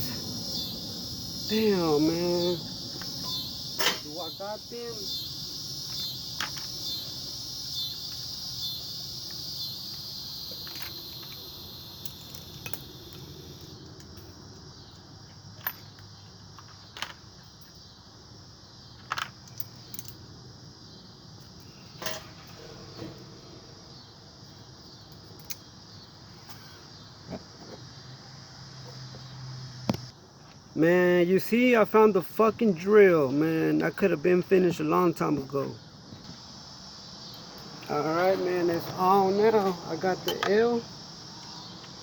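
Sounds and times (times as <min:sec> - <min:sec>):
crickets trilling: 0:00.0 - 0:42.0
hand tools clinking: 0:01.5 - 0:05.2, 0:21.6 - 0:23.3, 0:39.6 - 0:40.6.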